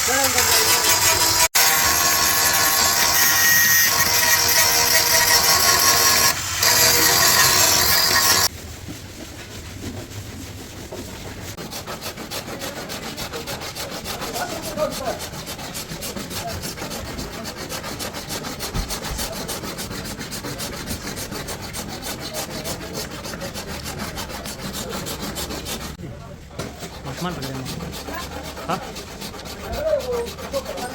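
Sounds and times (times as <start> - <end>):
hand tool scraping metal: 0.0 - 8.5, 10.9 - 26.0, 26.6 - 30.9
power tool running: 0.0 - 8.5.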